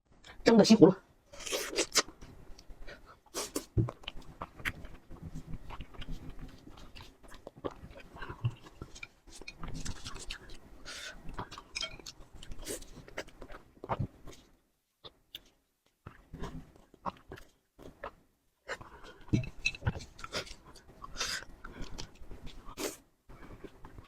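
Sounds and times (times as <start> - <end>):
chewing and mouth noises: 1.4 - 24.0.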